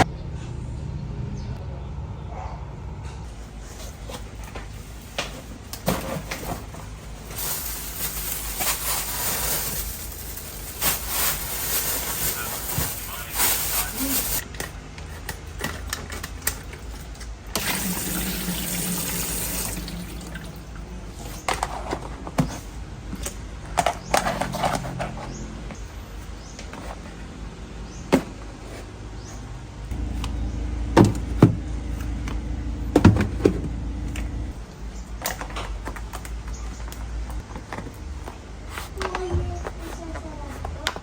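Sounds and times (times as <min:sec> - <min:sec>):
tap water running into sink: 0:17.6 - 0:20.7.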